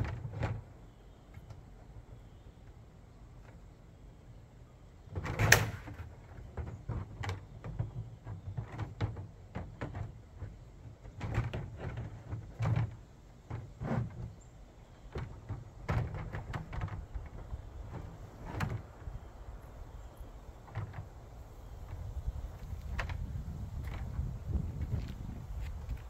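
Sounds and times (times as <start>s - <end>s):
plastic panels knocking and clunking: 5.1s - 14.4s, 15.1s - 19.0s, 20.6s - 21.2s.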